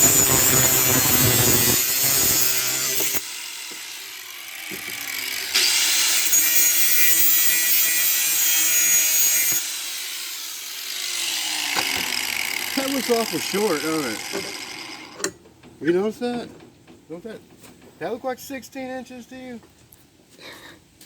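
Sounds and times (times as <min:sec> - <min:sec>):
power saw cutting steel pipe: 0:00.0 - 0:15.3.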